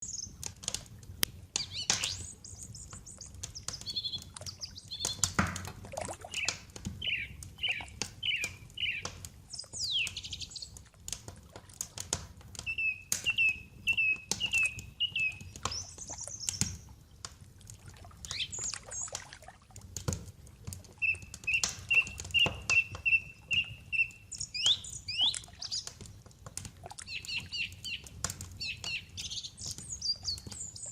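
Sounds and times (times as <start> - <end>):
wood fire crackling: 0.0 - 30.9
birds chirping: 1.6 - 5.4, 6.1 - 10.8, 12.6 - 17.2, 18.2 - 19.2, 21.0 - 26.3, 27.0 - 30.9.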